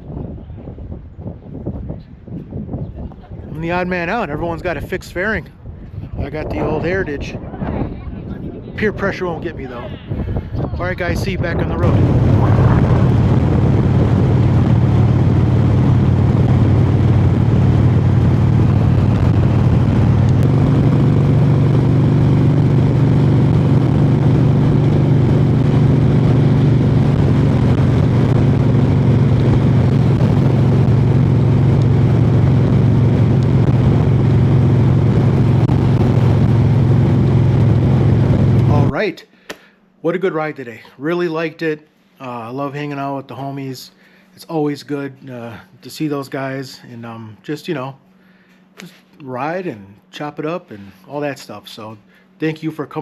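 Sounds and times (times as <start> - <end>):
motorcycle engine cruising: 11.7 - 38.9.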